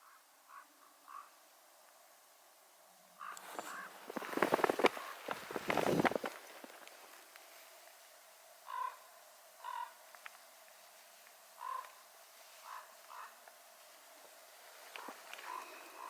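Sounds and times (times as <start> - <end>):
crow cawing: 0.0 - 1.4, 3.2 - 4.0, 8.6 - 10.0, 11.6 - 12.0, 12.6 - 13.4, 15.0 - 16.0.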